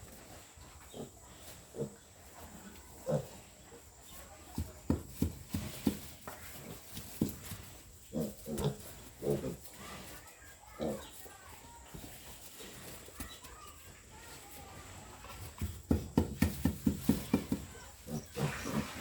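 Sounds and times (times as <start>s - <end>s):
piglets grunting: 0.9s - 3.5s, 8.0s - 11.2s, 17.8s - 19.0s.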